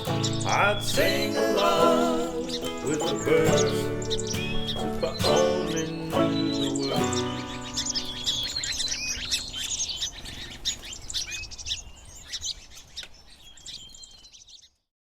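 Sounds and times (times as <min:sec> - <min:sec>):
banjo and guitar chord: 0:00.0 - 0:08.0
songbirds chirping and trilling: 0:00.0 - 0:14.9.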